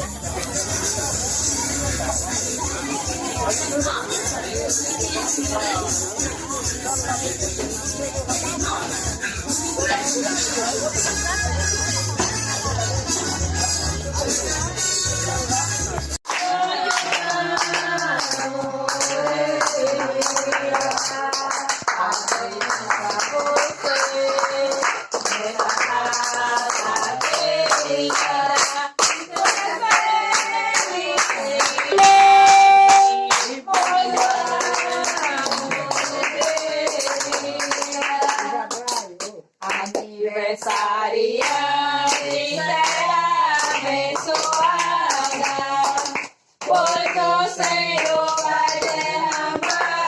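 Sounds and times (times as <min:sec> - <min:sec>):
handclapping: 0:16.2 - 0:50.0
group singing: 0:16.3 - 0:38.6, 0:39.7 - 0:50.0
loud steady tone: 0:31.9 - 0:33.5
person singing long held notes: 0:31.9 - 0:33.6.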